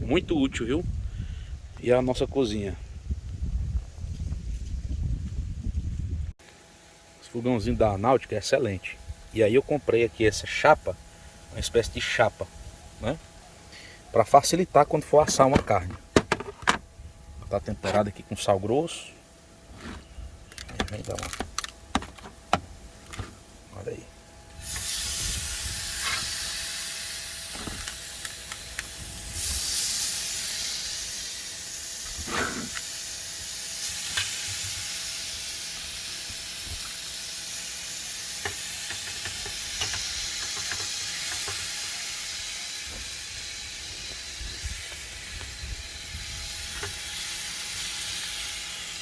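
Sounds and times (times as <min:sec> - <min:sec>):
beef sizzling on a griddle: 0:24.5 - 0:49.0.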